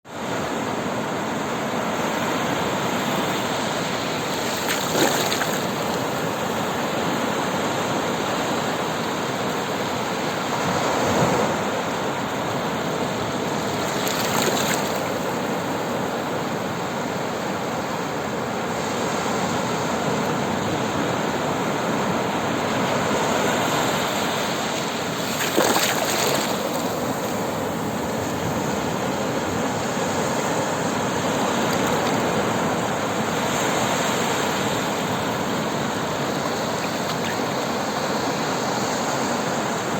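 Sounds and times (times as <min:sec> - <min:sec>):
sea water lapping: 0:02.4 - 0:07.5, 0:13.2 - 0:15.9, 0:23.8 - 0:39.9
water splashes: 0:03.2 - 0:06.6, 0:13.6 - 0:15.6, 0:24.6 - 0:28.5, 0:33.4 - 0:39.3.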